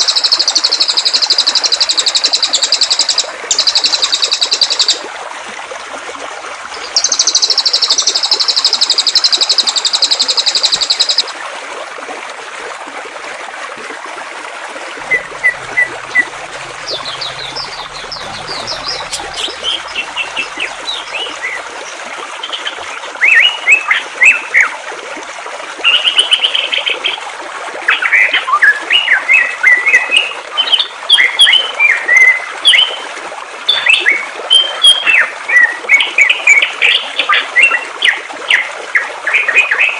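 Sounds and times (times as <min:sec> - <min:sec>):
rapid high bird trill: 0:00.0 - 0:05.0, 0:15.0 - 0:21.6
songbirds calling: 0:00.0 - 0:05.0, 0:06.7 - 0:11.3, 0:15.0 - 0:24.0
running water: 0:00.0 - 0:39.9.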